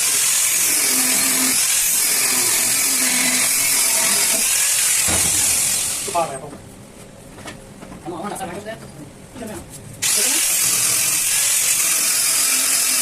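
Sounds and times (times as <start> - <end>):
power tool high-pitched whir: 0.0 - 6.2, 10.0 - 13.0.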